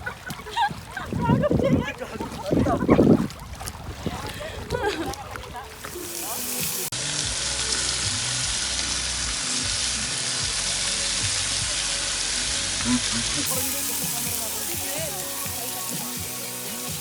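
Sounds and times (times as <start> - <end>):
food sizzling: 5.8 - 11.2, 11.9 - 17.0.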